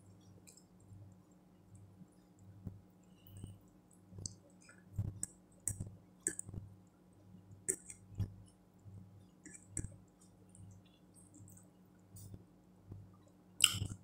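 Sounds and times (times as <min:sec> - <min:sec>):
steady low hum: 0:00.0 - 0:14.0
chewing with wet mouth clicks: 0:07.7 - 0:08.0, 0:13.6 - 0:14.0.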